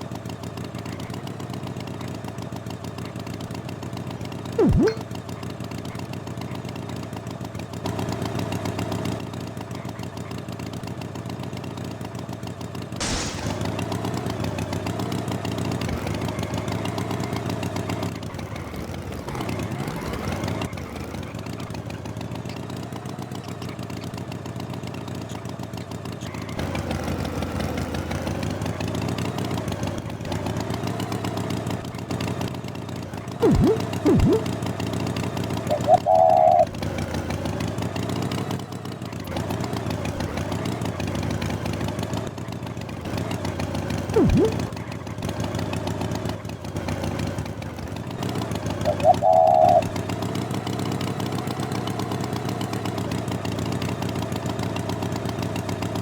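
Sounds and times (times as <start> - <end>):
engine running: 0.0 - 56.0
loud falling swoop: 4.6 - 5.0, 13.0 - 14.0, 33.4 - 34.5.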